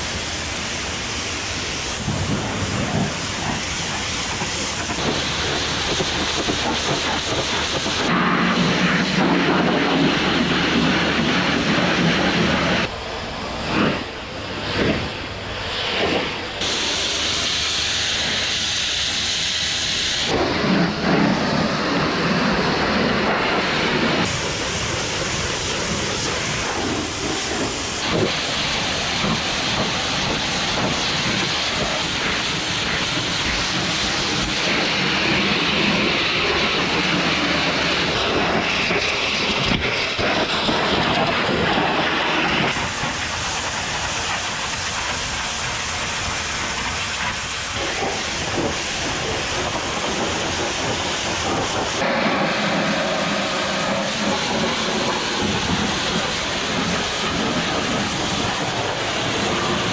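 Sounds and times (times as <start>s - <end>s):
pressure washer jet hissing: 0.0s - 12.9s, 14.0s - 59.9s.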